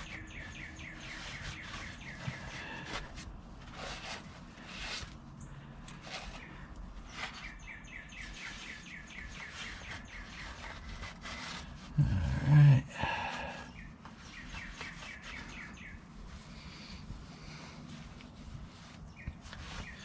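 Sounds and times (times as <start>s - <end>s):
small bird chirping: 0.0s - 2.8s, 6.2s - 10.8s, 13.7s - 16.1s, 19.1s - 20.0s
short scuffing strokes: 14.2s - 20.0s.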